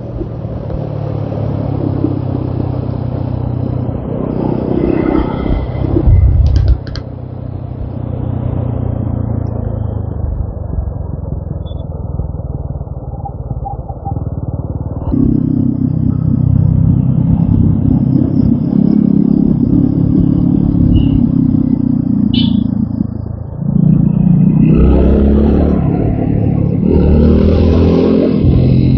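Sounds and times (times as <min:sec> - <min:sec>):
motorcycle engine running: 0:05.8 - 0:28.9.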